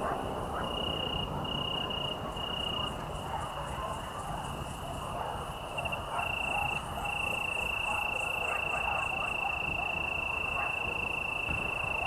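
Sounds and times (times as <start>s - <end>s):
faint insect chirping: 5.7s - 12.0s.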